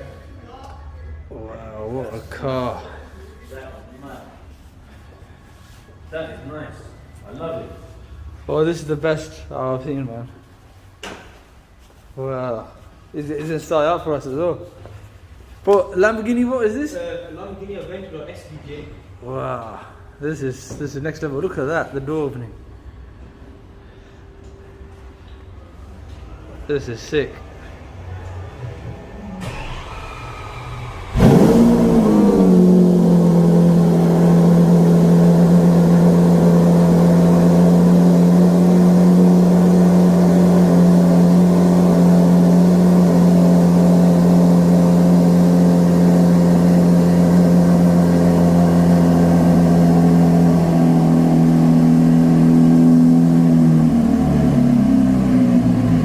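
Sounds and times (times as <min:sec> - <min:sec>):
car engine starting and idling: 0:29.2 - 0:56.0.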